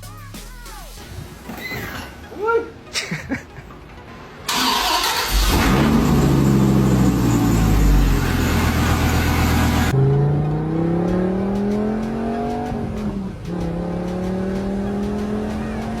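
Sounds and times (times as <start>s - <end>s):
car accelerating: 4.5s - 16.0s
car engine revving: 4.5s - 16.0s.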